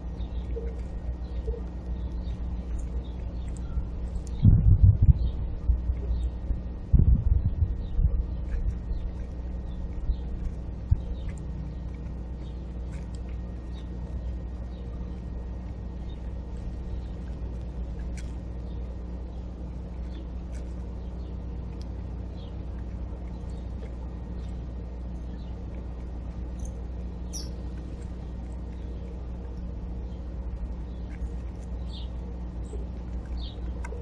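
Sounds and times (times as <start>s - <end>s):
small birds chirping: 0.0s - 34.0s
steady low rumble: 0.0s - 34.0s.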